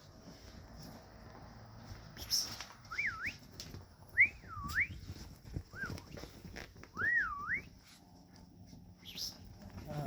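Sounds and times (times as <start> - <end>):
puppies rustling on a bed: 0.0 - 10.0
person whistling: 2.9 - 3.4, 4.2 - 5.0, 7.0 - 7.8.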